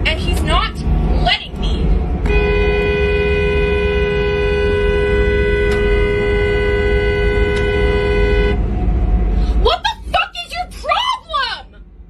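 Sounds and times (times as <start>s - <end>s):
car rumbling on road: 0.0s - 12.0s
car horn long blast: 2.2s - 8.6s.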